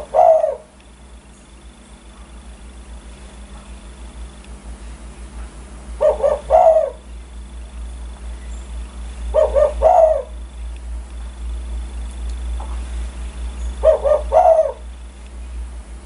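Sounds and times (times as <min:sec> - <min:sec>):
dove cooing: 0:00.0 - 0:00.8, 0:05.8 - 0:07.4, 0:08.9 - 0:10.6, 0:13.1 - 0:15.1.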